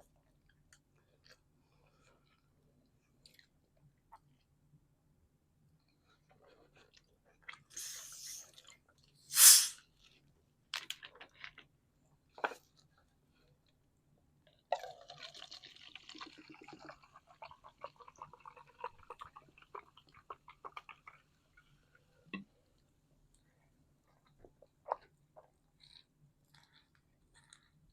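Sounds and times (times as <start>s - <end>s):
crackly chewing: 22.6s - 27.9s
bites and wet mouth sounds: 24.2s - 27.8s.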